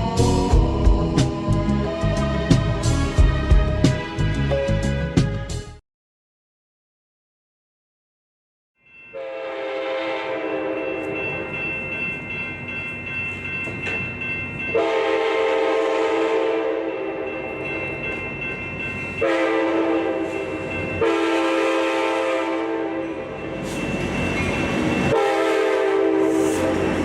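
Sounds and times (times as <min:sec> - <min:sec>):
passing train rumble and rattle: 0:00.0 - 0:05.1, 0:09.7 - 0:27.0
train horn: 0:09.1 - 0:11.3, 0:14.7 - 0:17.4, 0:19.2 - 0:23.4, 0:25.1 - 0:27.0.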